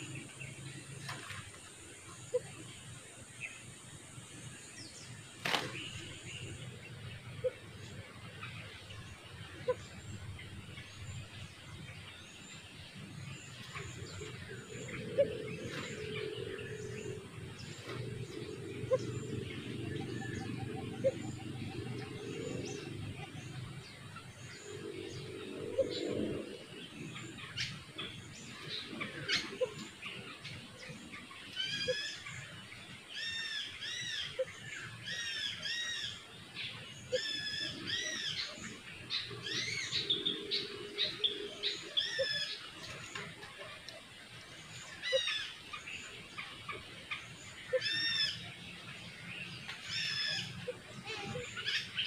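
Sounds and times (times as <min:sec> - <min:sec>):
songbirds chirping: 0:00.0 - 0:52.0.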